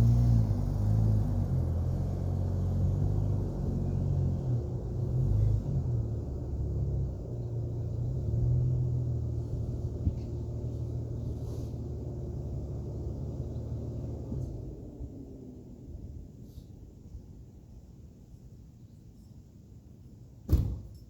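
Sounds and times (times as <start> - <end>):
car exhaust rumble: 0.0 - 16.3.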